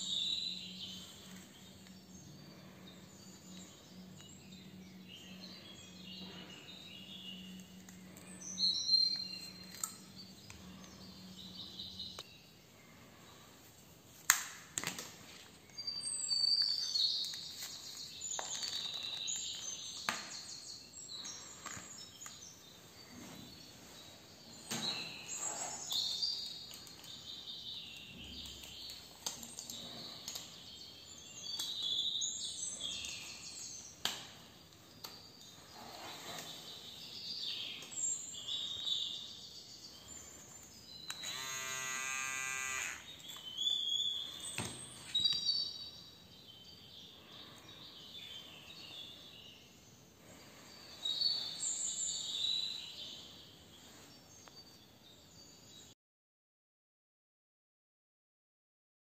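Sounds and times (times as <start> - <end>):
birds chirping: 0.0 - 13.6, 35.2 - 54.6
clicks of handling a hair clipper: 14.3 - 15.1, 41.1 - 43.4
steady buzz: 41.2 - 43.1.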